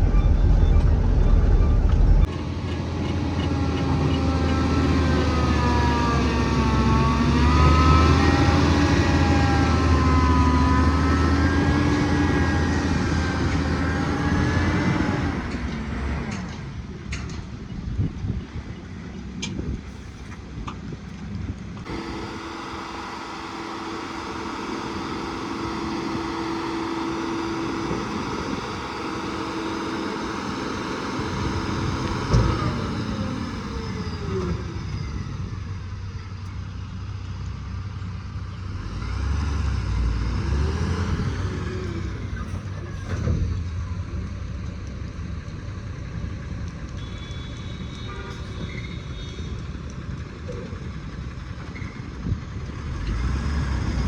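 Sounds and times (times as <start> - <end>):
engine revving: 0.0 - 16.6, 21.8 - 35.8, 38.6 - 43.4, 52.2 - 54.0
diesel engines running: 0.0 - 54.0.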